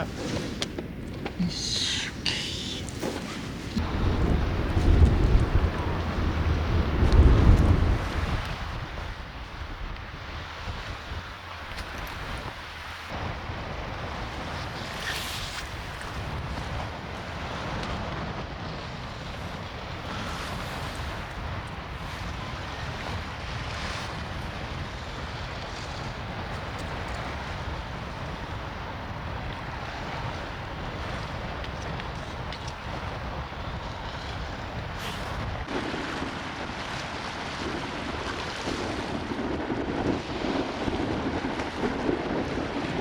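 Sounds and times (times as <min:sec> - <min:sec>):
strong wind buffeting microphone: 0:00.0 - 0:43.0.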